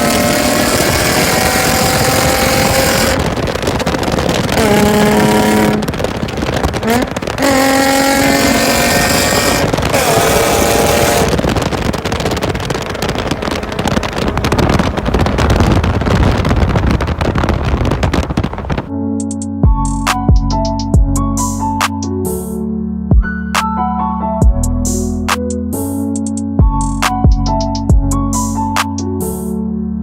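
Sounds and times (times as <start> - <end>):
car engine revving: 0.0 - 18.9
rushing noise with low rumble: 0.0 - 22.5, 24.4 - 29.5.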